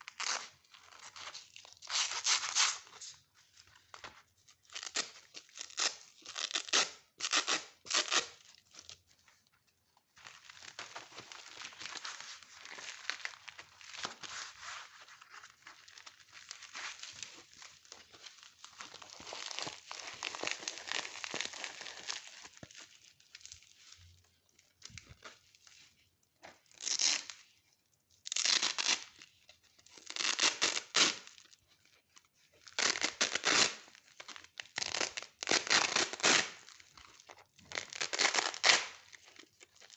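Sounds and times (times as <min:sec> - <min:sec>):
velcro fastener ripping: 0:00.0 - 0:03.1, 0:04.0 - 0:09.0, 0:10.2 - 0:22.9, 0:26.7 - 0:27.4, 0:28.2 - 0:29.3, 0:29.9 - 0:31.5, 0:32.6 - 0:39.9.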